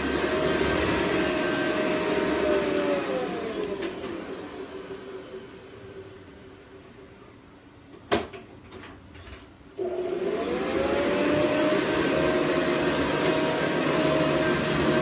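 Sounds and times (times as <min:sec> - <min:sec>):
vacuum motor whine: 0:00.0 - 0:06.8, 0:09.8 - 0:15.0.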